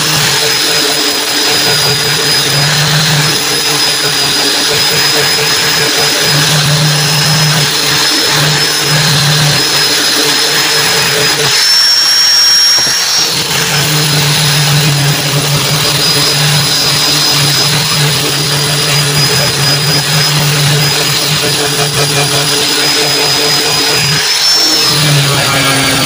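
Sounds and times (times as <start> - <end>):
motor running with high whine: 0.0 - 26.0.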